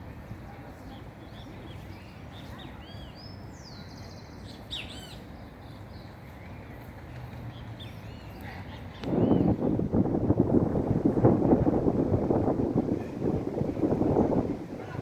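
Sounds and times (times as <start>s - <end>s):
low background noise: 0.0s - 15.0s
small birds chirping: 0.1s - 9.7s.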